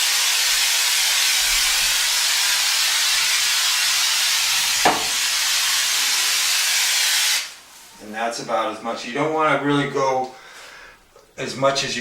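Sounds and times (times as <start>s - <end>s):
aerosol can hissing: 0.0s - 7.6s.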